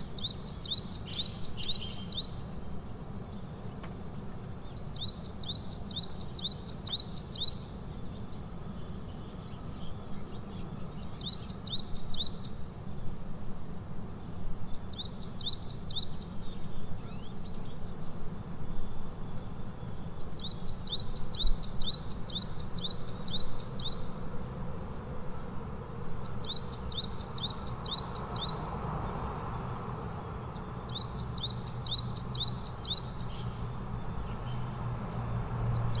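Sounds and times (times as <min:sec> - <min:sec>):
bird chirping: 0:00.0 - 0:02.5, 0:03.2 - 0:13.1, 0:18.8 - 0:24.6, 0:26.2 - 0:28.6, 0:30.4 - 0:36.0.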